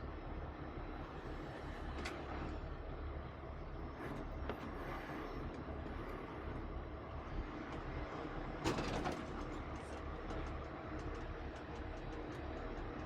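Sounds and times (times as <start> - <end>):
light clicks: 9.2 - 13.0.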